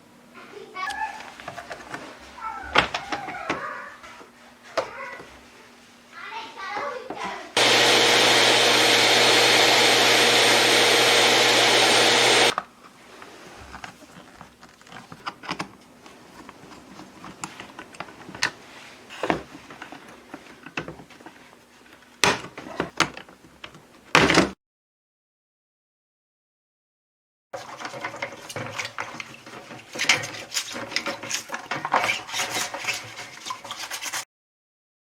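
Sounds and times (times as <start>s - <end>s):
small electric motor whining: 7.6s - 12.6s.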